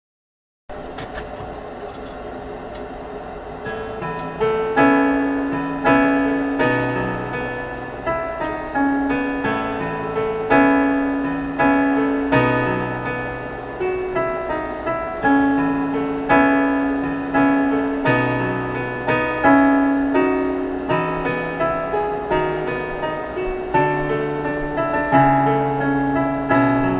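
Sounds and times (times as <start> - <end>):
slow piano music: 3.6 - 26.9.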